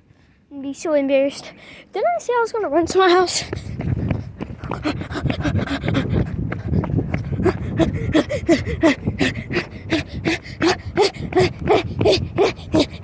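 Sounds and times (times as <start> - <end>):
person panting while running: 3.2 - 13.0.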